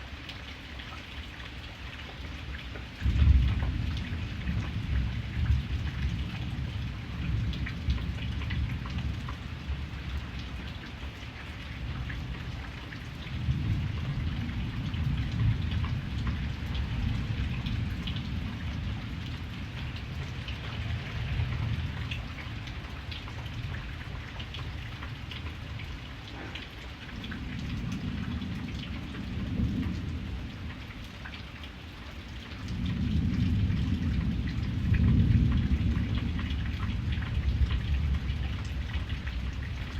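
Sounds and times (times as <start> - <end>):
rain pattering: 0.0 - 39.9
thunder rumbling: 3.0 - 10.6, 13.2 - 24.8, 26.4 - 30.8, 32.6 - 39.9.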